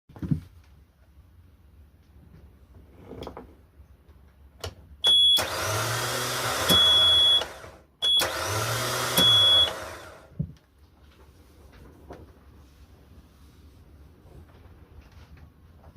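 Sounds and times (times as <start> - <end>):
loud high steady beep: 5.0 - 5.4, 6.7 - 8.3, 9.2 - 9.8
starter motor whirring: 5.3 - 10.4.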